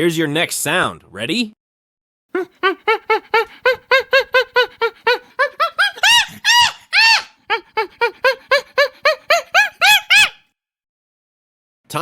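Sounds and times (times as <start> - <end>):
monkey hooting and screeching: 2.4 - 10.4.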